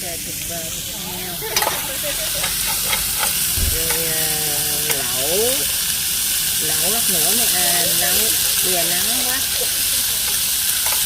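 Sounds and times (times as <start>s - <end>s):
food sizzling: 0.0s - 11.0s
utensil clicking on cookware: 1.5s - 1.8s, 2.4s - 5.6s, 8.2s - 11.0s.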